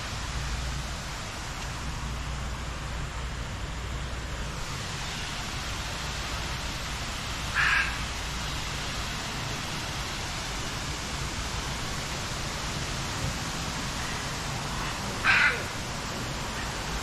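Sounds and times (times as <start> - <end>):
steady rushing noise: 0.0 - 17.0
harsh bird call: 15.2 - 15.8.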